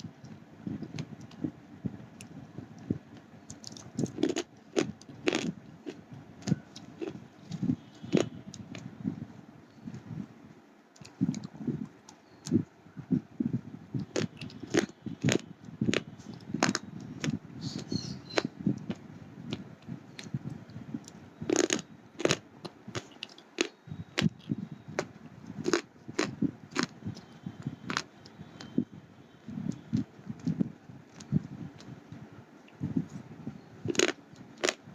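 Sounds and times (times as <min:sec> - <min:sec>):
low grinding chewing: 0:02.1 - 0:08.8, 0:13.9 - 0:28.8, 0:33.8 - 0:34.8
pencils being bitten and crunched: 0:03.5 - 0:05.5, 0:14.0 - 0:15.4, 0:21.5 - 0:22.4, 0:33.9 - 0:34.8.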